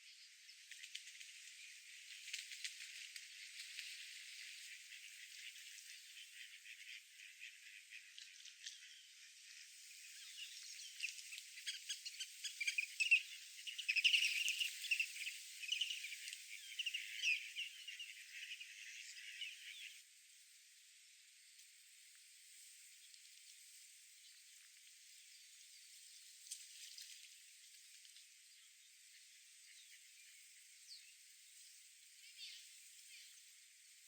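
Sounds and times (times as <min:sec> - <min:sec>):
birds chirping: 0:10.3 - 0:20.0
faint hiss: 0:18.4 - 0:34.0.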